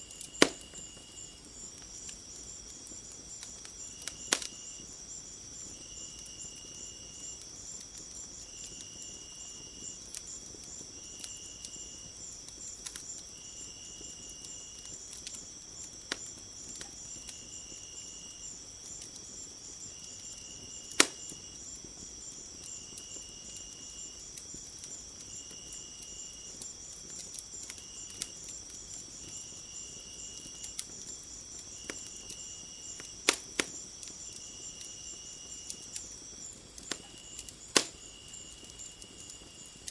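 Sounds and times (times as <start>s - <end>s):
lower insect call in dashes: 0.0s - 2.6s
insects trilling: 0.0s - 39.9s
wood fire crackling and popping: 0.0s - 39.9s.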